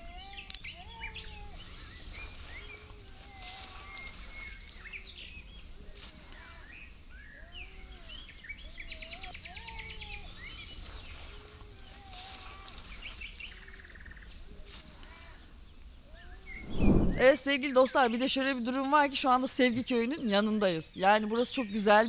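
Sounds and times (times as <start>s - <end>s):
low steady rumble: 16.6s - 17.3s.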